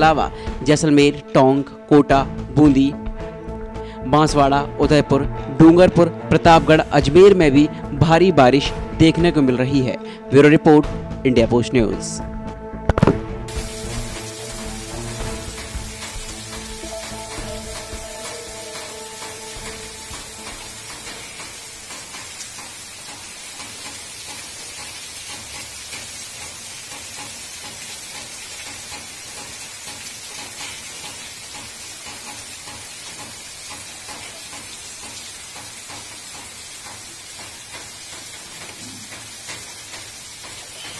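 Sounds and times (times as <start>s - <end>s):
heavy rain on street: 13.5s - 40.9s.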